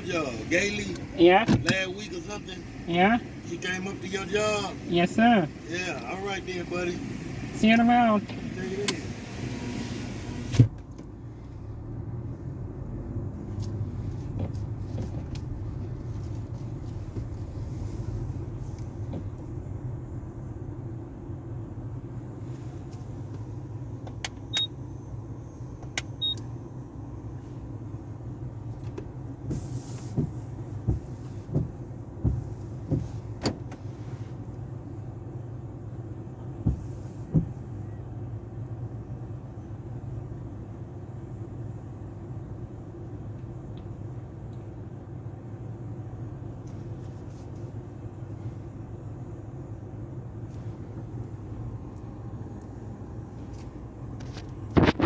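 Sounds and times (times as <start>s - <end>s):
car wash equipment drone: 0.0s - 10.7s.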